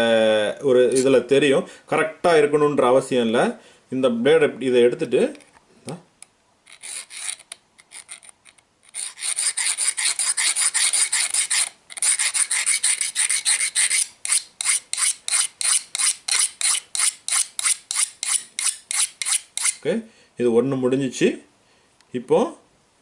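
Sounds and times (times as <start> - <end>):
metal file rasping on blade: 6.7 - 8.3, 8.9 - 19.8.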